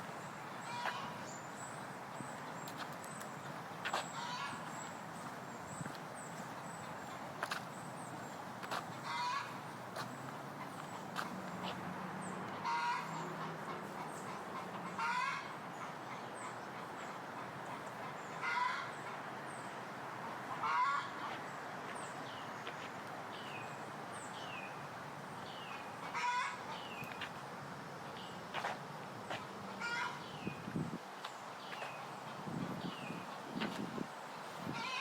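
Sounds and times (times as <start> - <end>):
bird honk-like calls: 0.6 - 1.2, 3.9 - 4.7, 9.0 - 9.6, 12.6 - 19.1, 29.8 - 30.2.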